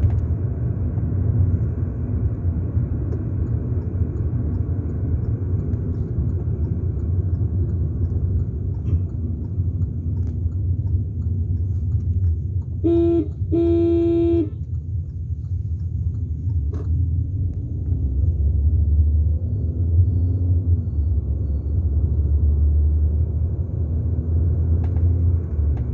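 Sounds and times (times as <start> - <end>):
vehicle motor rumble: 0.0 - 25.9
vehicle horn honking: 12.8 - 14.6.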